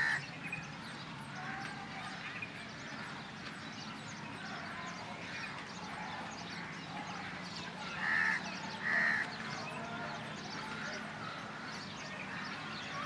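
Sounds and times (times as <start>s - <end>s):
loud harsh bird calls: 0.0s - 0.7s, 4.4s - 13.0s
birds thin chirps: 0.0s - 13.0s.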